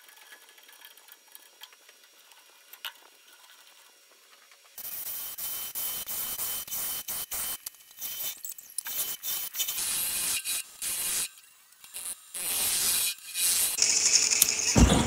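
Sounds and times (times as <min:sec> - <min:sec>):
lathe whine: 0:13.7 - 0:15.0.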